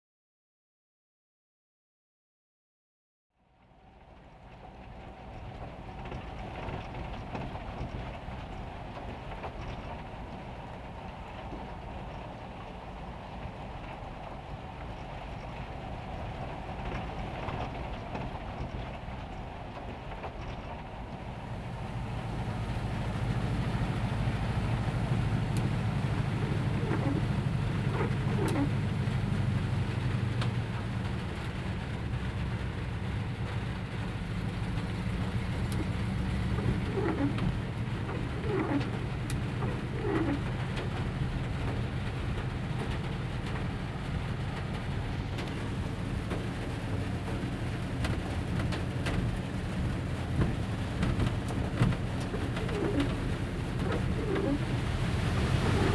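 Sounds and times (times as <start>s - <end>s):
rain pattering on metal roof: 3.5s - 55.9s
bird cooing: 53.8s - 54.7s.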